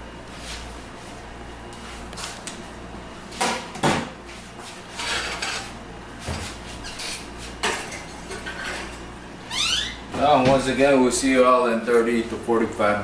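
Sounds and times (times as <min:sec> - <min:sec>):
dishes and pan clattering: 0:07.0 - 0:09.0.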